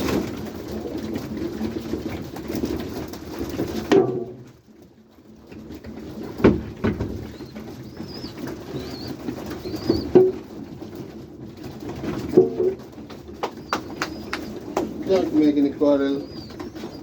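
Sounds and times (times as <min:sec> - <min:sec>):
pigeons cooing: 0:00.0 - 0:17.0
sharp taps and knocks: 0:06.4 - 0:11.1, 0:11.8 - 0:15.6
thin high calls: 0:13.5 - 0:17.0.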